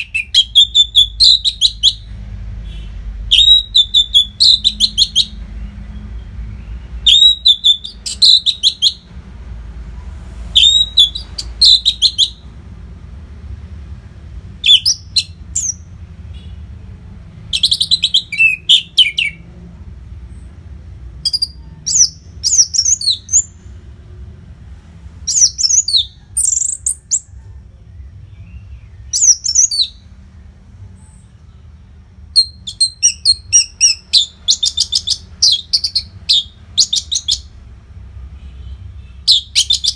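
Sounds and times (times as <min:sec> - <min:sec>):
thrush singing whistled notes: 0:00.0 - 0:02.1, 0:03.3 - 0:05.4, 0:06.1 - 0:09.1, 0:10.5 - 0:12.5, 0:14.6 - 0:15.9, 0:17.5 - 0:19.4, 0:21.2 - 0:23.6, 0:25.3 - 0:27.3, 0:28.3 - 0:30.1, 0:32.4 - 0:37.6, 0:39.2 - 0:39.9.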